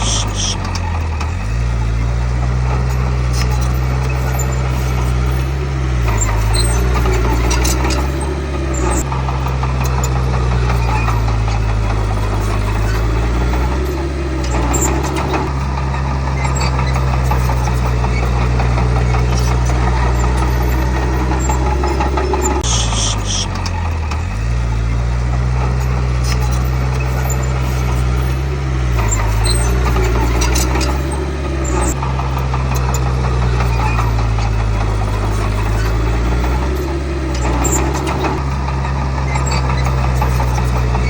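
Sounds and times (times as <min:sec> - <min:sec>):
short high squeal: 0:00.0 - 0:00.7, 0:03.0 - 0:09.1, 0:09.8 - 0:15.5, 0:16.4 - 0:23.6, 0:25.9 - 0:32.0, 0:32.7 - 0:41.0
bulldozer diesel engine running: 0:00.0 - 0:41.0
rattling and clicking: 0:00.0 - 0:41.0.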